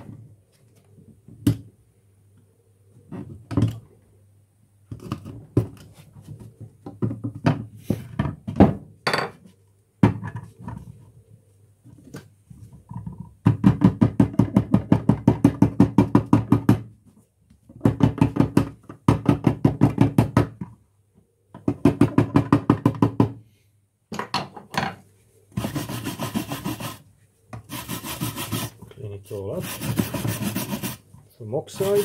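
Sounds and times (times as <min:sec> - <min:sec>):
rough scraping of lead: 0:31.7 - 0:32.0.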